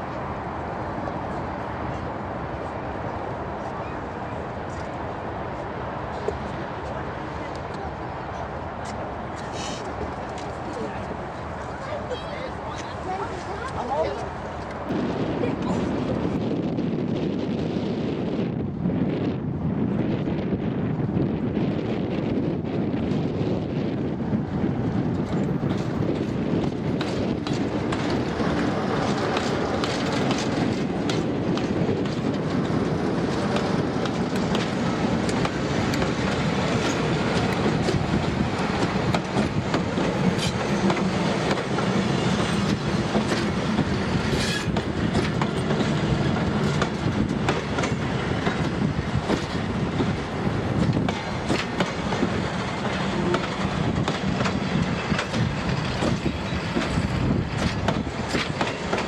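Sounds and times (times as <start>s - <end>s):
train engine running past: 0.0s - 59.0s
wheels clicking over rail joints: 25.0s - 59.0s.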